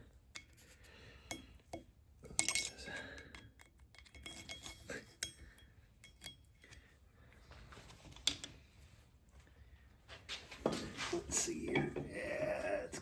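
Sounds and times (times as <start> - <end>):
metal tools clinking: 2.3 - 2.9, 3.9 - 6.8.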